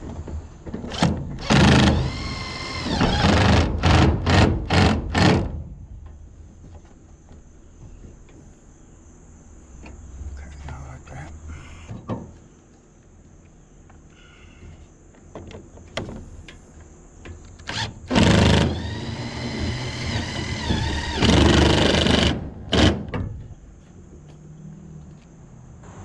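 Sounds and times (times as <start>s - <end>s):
power driver driving screws: 17.7s - 23.0s.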